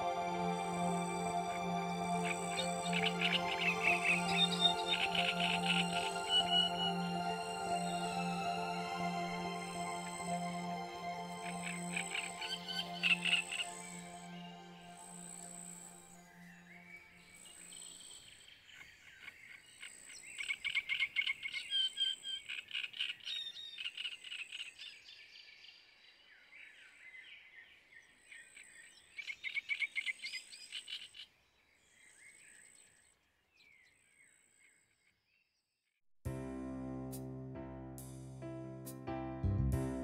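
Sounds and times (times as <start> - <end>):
thin high tone: 0.0 - 17.2
background music: 0.0 - 17.4, 36.3 - 40.0
birds chirping: 2.2 - 9.0.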